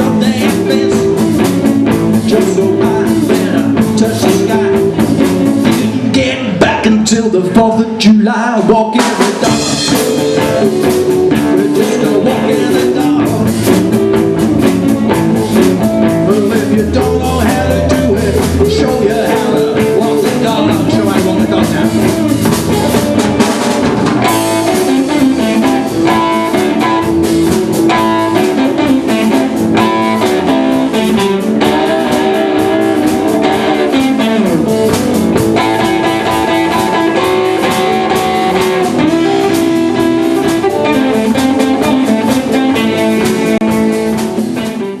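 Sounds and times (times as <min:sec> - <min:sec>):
drum beat: 0:00.0 - 0:07.0, 0:08.9 - 0:45.0
blues guitar melody: 0:00.0 - 0:45.0.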